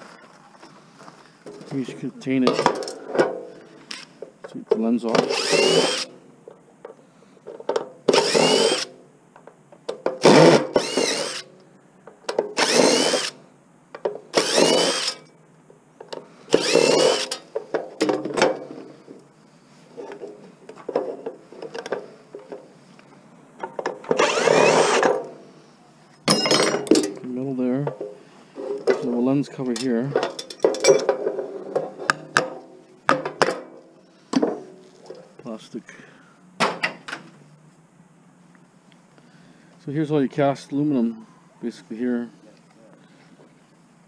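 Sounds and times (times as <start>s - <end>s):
power drill whining: 5.2s - 6.1s, 8.1s - 8.9s, 10.2s - 11.5s, 12.6s - 13.4s, 14.3s - 15.2s, 16.5s - 17.4s, 24.1s - 25.1s.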